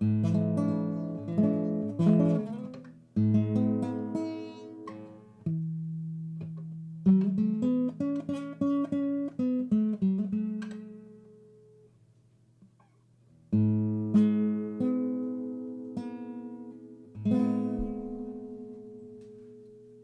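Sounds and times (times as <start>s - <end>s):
acoustic guitar music: 0.0s - 20.0s.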